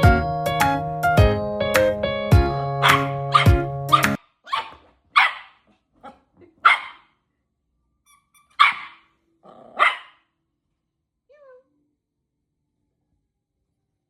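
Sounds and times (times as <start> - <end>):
small dog barking: 2.8 - 7.1, 8.5 - 10.3.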